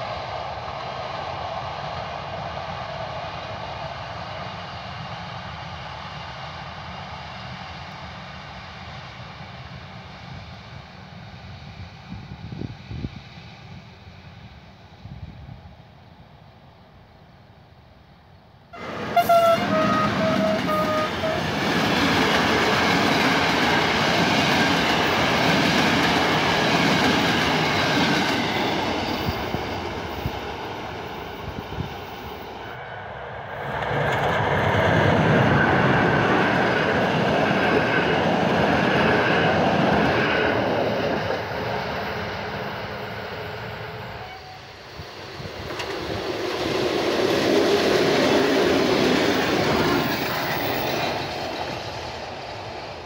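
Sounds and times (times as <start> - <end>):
trains running past: 0.0 - 53.0
train horn: 18.8 - 21.8, 44.0 - 44.8.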